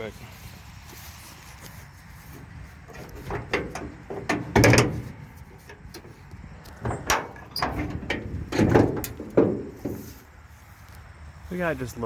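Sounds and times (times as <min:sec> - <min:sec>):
metal hood clanking and rattling: 0:02.4 - 0:10.3.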